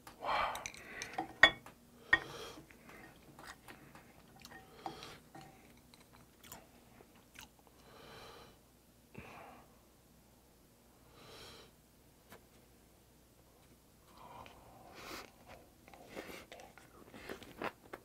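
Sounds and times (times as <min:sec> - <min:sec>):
chewing food: 0:02.7 - 0:07.8.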